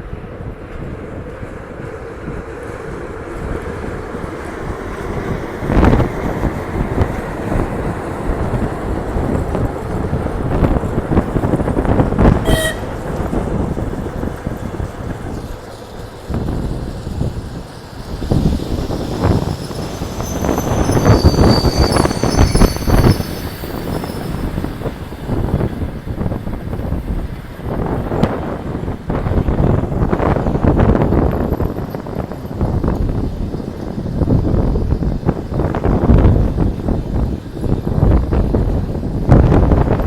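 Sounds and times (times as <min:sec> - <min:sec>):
train rumbling: 0:00.0 - 0:40.0
high wheel squeal: 0:12.2 - 0:13.4, 0:17.3 - 0:26.3
train horn toot: 0:12.3 - 0:13.3.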